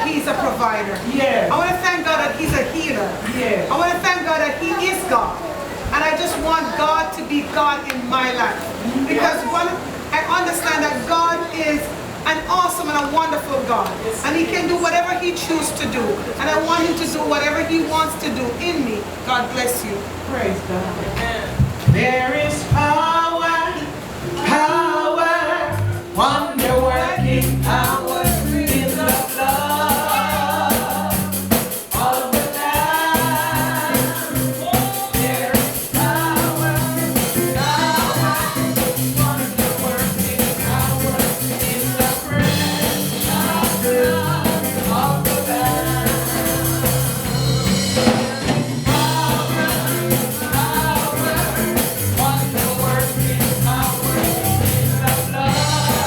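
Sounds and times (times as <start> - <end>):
band with bass and drums: 21.0 - 22.9, 25.7 - 56.0
people singing: 21.8 - 56.0.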